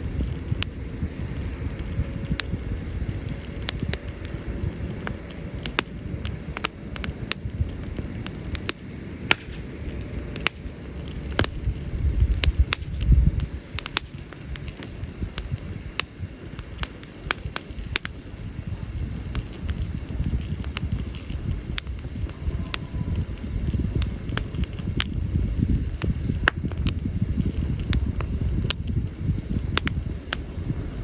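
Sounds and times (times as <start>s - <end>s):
campfire crackling and popping: 0.0s - 31.0s
low rumble: 0.0s - 31.0s.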